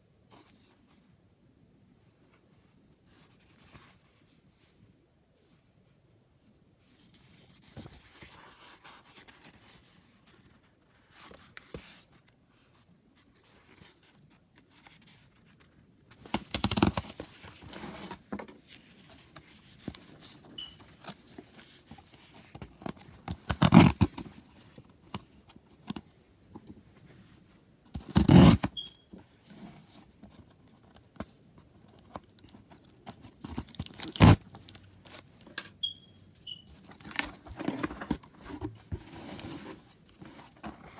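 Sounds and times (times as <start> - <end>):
packaging rustling and scraping: 13.5 - 40.9
packaging tearing: 23.3 - 24.2, 28.0 - 28.8, 33.6 - 34.4.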